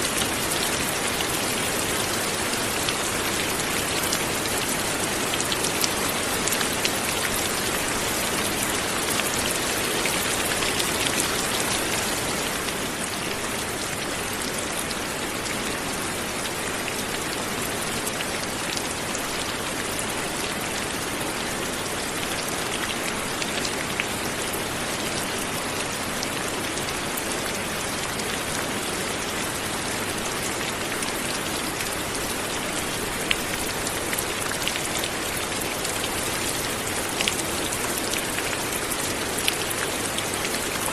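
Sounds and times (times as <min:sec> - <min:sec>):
light rain pattering: 0:00.0 - 0:40.9.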